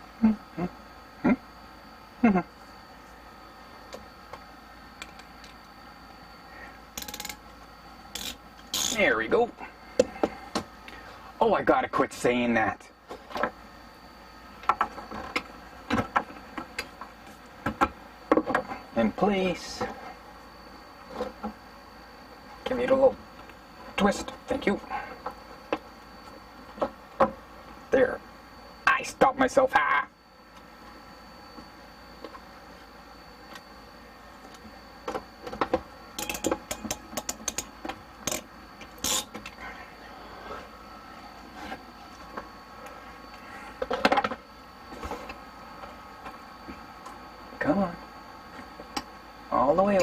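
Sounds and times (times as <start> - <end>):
faint background hum: 0.0 - 50.0
tools knocking and clicking: 35.4 - 38.4.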